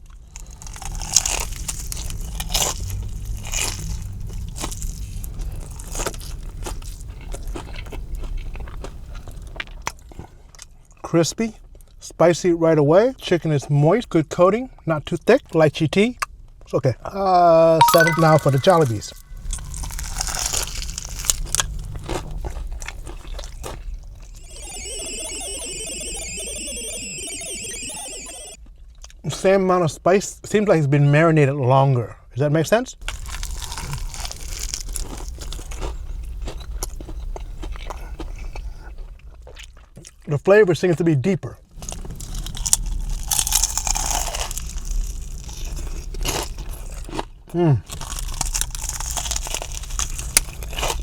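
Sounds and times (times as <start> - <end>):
crunching bite into fried chicken: 0.4 - 10.0, 20.1 - 23.5, 33.1 - 38.7, 41.9 - 51.0
chewing with small crackles: 0.5 - 10.7
pulsing high-pitched electronic alarm: 24.4 - 28.6.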